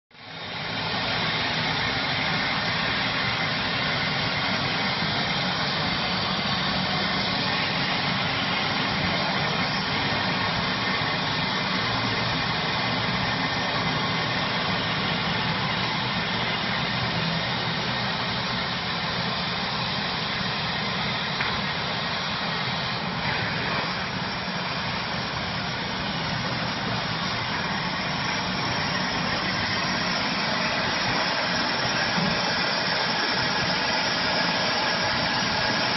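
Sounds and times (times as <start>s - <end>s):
plasma torch cutting steel hiss: 20.3s - 35.9s.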